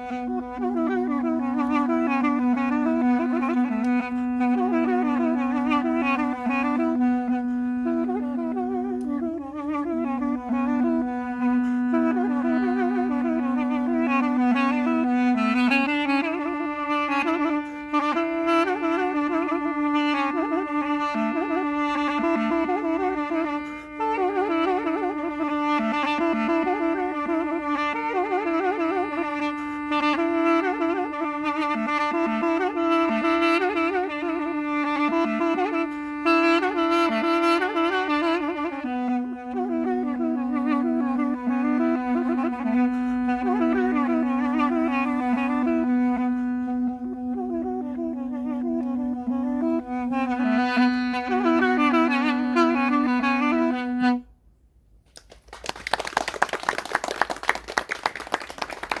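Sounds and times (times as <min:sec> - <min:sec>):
held drone note: 0:00.0 - 0:54.2
duduk playing ornamented melody: 0:00.0 - 0:54.3
audience applause: 0:55.1 - 0:59.0.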